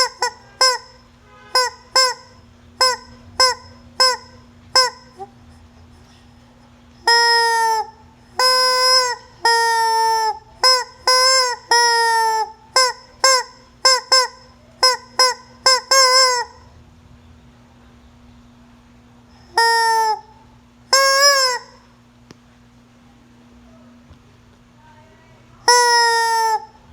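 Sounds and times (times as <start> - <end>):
hen calling: 25.7 - 26.8.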